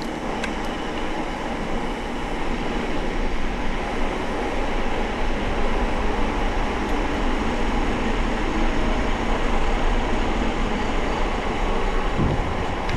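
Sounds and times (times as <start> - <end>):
wind rushing over microphone: 5.1 - 12.9.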